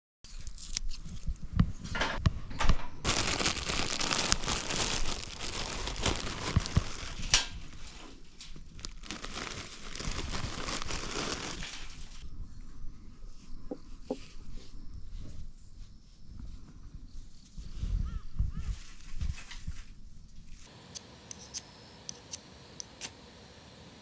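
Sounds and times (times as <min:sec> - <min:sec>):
crinkling and rustling: 0:00.3 - 0:12.2
small sharp clicks: 0:20.8 - 0:23.3.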